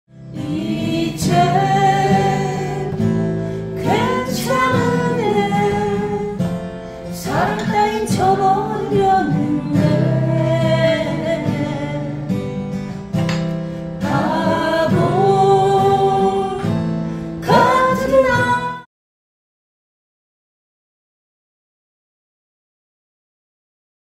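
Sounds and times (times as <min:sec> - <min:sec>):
acoustic guitar strumming: 0:00.1 - 0:18.8
person singing: 0:00.3 - 0:12.4, 0:14.0 - 0:18.9.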